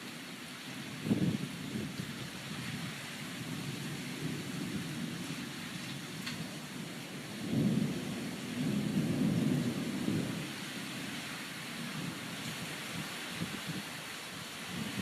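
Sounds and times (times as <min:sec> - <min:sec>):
steady rain hissing: 0:00.0 - 0:15.0
thunder rumbling: 0:03.3 - 0:11.2.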